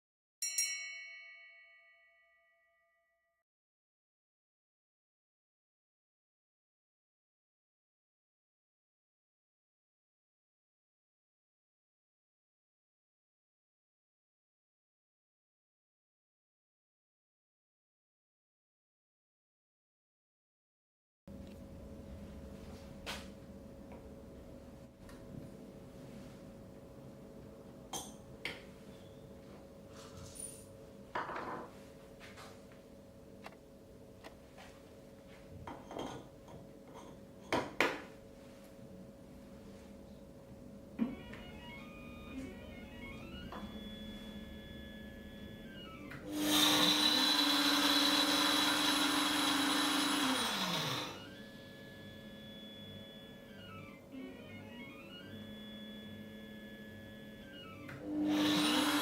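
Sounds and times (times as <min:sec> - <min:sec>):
faint steady hum: 0:21.3 - 0:48.6
laboratory mill grinding seeds: 0:41.1 - 0:59.0.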